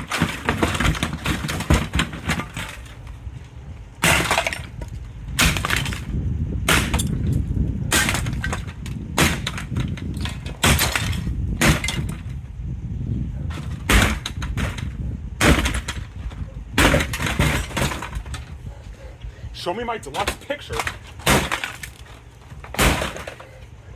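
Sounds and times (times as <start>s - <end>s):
steady low rumble: 0.0s - 23.9s
glass smashing: 4.0s - 4.7s, 20.7s - 22.0s.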